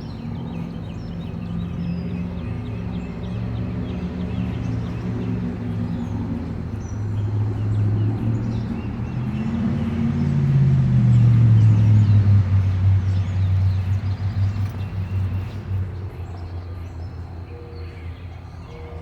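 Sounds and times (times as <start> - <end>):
motor vehicle passing: 2.4 - 17.4.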